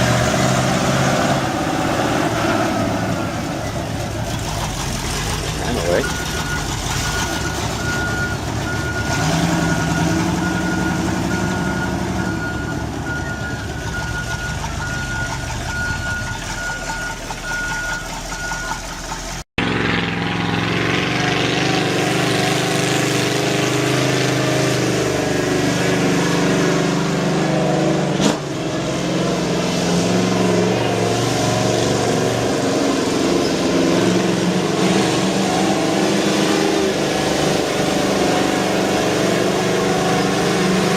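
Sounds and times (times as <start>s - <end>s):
heavier engine running: 0.0s - 40.9s
truck engine running: 0.0s - 40.9s
reversing beeper: 5.6s - 19.1s.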